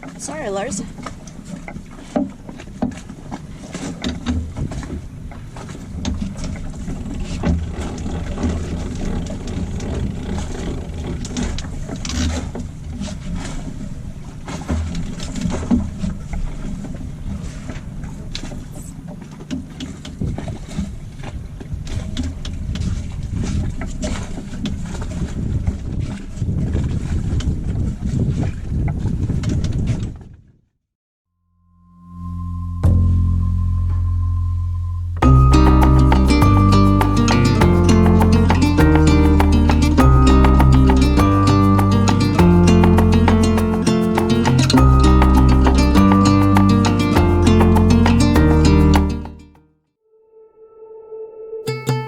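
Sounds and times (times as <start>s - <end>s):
wind and water rumble: 0.0s - 30.4s.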